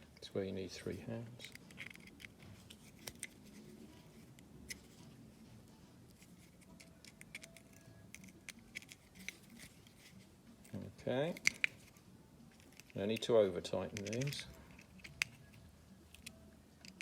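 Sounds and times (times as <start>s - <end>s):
light clicks of small parts: 10.6s - 17.0s.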